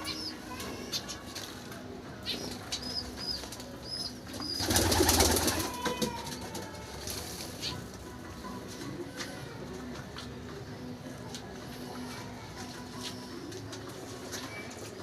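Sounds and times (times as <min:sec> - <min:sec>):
small birds chirping: 0:00.0 - 0:01.4, 0:02.2 - 0:05.2.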